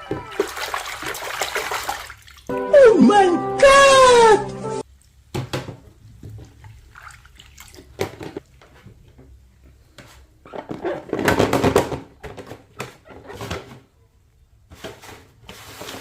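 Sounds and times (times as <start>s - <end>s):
water splashing and sloshing: 0.0s - 2.5s, 5.9s - 8.7s.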